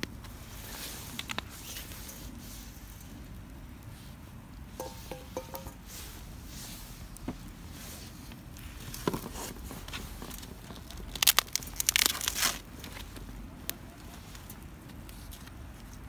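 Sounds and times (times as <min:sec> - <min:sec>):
sharp crackles: 0:00.0 - 0:04.8, 0:05.8 - 0:16.0
crinkling and rustling: 0:04.8 - 0:16.0.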